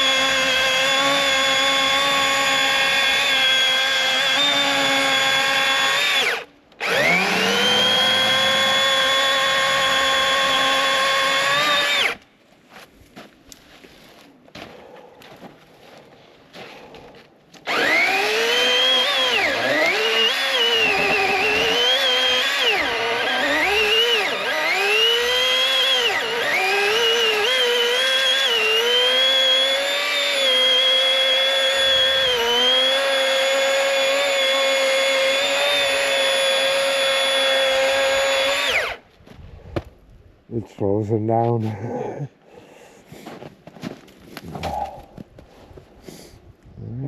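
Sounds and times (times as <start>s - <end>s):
electric chainsaw whining: 0.0s - 12.2s, 17.6s - 39.0s.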